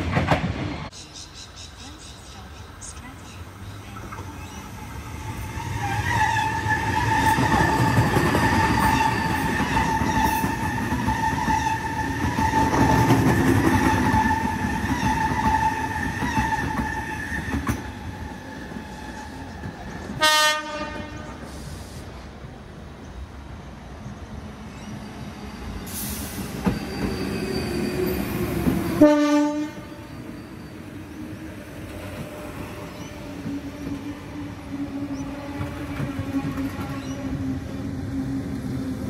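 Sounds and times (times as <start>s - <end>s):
electric train rumbling and whining: 0.0s - 39.0s
train horn blast: 20.2s - 21.6s, 29.0s - 30.1s.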